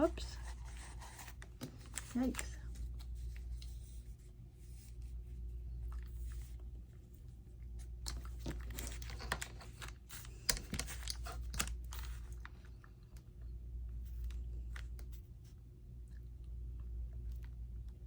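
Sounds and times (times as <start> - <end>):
low electrical hum: 0.0 - 18.0
paper rustling and scraping: 8.2 - 12.5.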